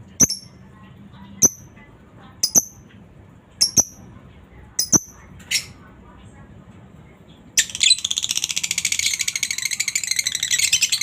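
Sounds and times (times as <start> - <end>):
lovebird high-pitched chirps: 0.2 - 0.6, 1.4 - 1.7, 2.4 - 2.8, 3.6 - 4.1, 4.8 - 5.8, 7.6 - 11.0
faint bird chatter: 7.2 - 11.0.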